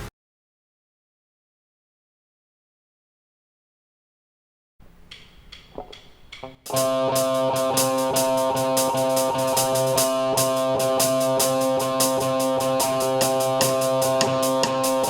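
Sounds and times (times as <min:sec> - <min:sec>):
drum kit playing steady beat: 0:05.1 - 0:15.0
guitar: 0:05.6 - 0:15.0.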